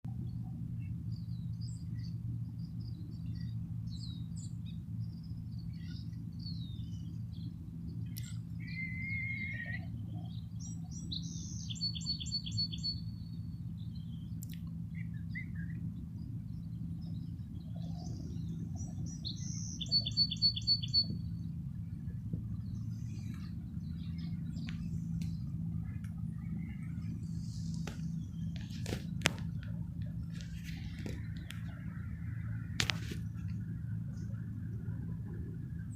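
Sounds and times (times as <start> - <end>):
low background hum: 0.0 - 35.9
small birds chirping: 0.2 - 34.5
songbird whistle buzz and trill: 8.1 - 14.4, 16.6 - 21.5.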